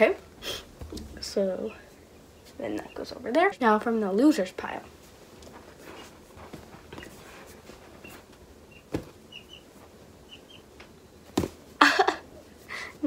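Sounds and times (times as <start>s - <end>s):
soft toys rustling: 0.8s - 10.3s.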